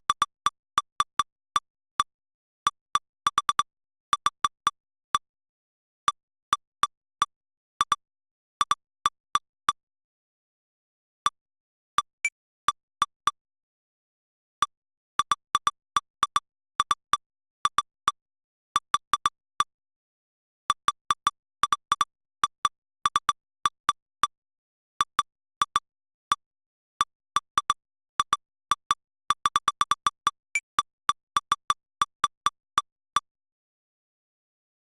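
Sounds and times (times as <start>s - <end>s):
short electronic ticks: 0.0s - 5.3s, 6.1s - 8.0s, 8.6s - 9.8s, 14.6s - 18.2s, 18.8s - 19.8s, 20.7s - 24.4s, 25.0s - 33.3s.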